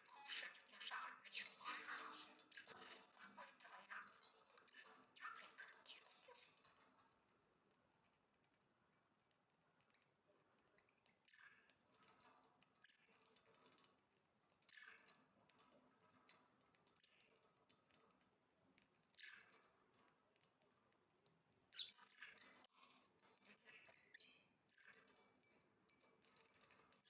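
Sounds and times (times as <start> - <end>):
parrot clicking and scratching toy: 0.1 - 23.8.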